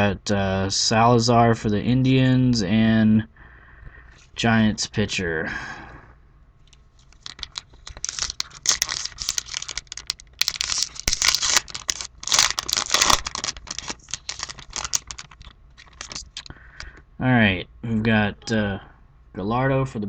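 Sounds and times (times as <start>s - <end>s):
wrapper tearing and crinkling: 7.0s - 16.5s.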